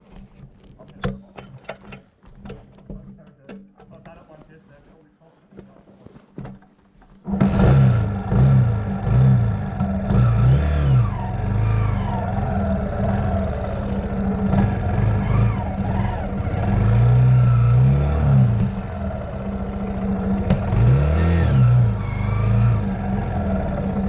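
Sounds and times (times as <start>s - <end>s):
dirt bike engine revving: 7.2s - 24.0s.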